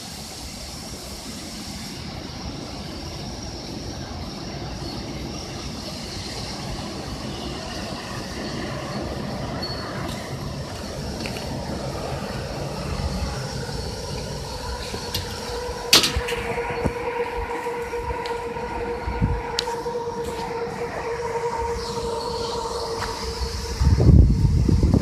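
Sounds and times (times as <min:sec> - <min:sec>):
wind and rain rushing: 0:00.0 - 0:25.0
low rumble: 0:06.5 - 0:25.0.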